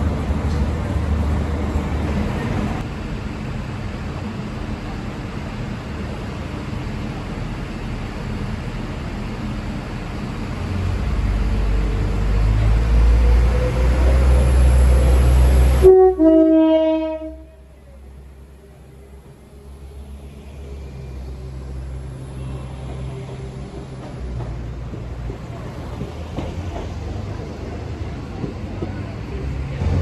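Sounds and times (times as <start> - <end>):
train rumble: 0.0 - 30.0
two-note train horn: 15.8 - 17.6.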